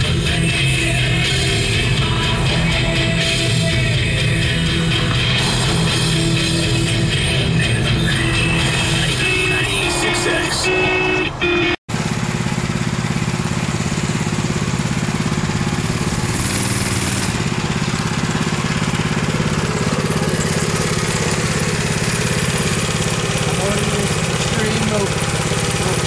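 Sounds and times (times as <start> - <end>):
small engine running: 0.0 - 10.0, 11.9 - 26.0.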